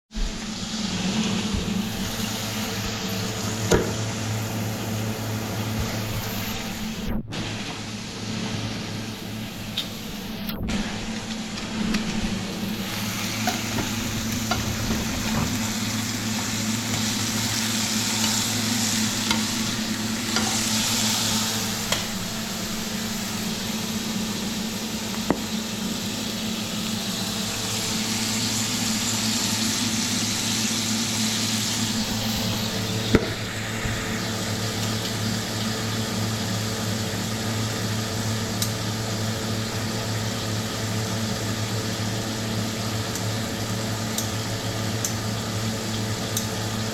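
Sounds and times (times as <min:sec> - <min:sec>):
low hum: 0:00.1 - 0:40.2
meat sizzling in a pan: 0:12.5 - 0:46.9.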